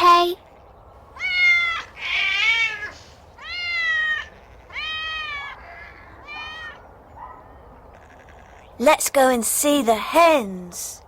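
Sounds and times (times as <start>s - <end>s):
cat meowing: 1.2s - 6.8s.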